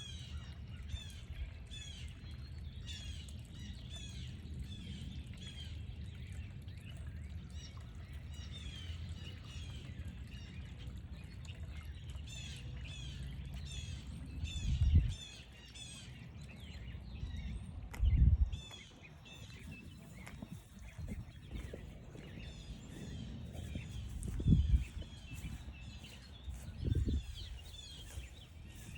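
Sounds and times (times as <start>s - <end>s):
high chirping calls: 14.6s - 28.9s
steady low rumble: 17.0s - 28.9s.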